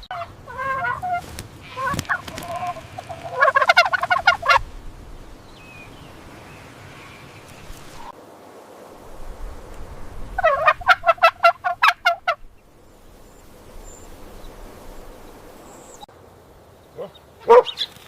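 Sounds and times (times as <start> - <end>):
bird calling rapidly: 0.0 - 4.6, 16.9 - 18.0.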